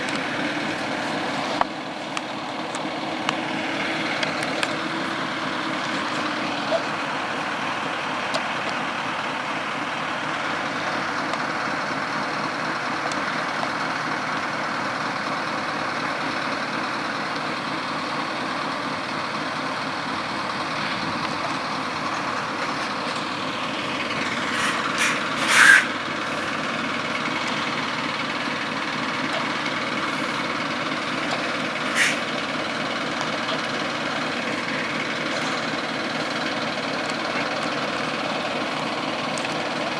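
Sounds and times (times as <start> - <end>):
truck traffic: 0.0 - 39.9
loud hiss bursts: 24.2 - 26.6, 31.8 - 32.4.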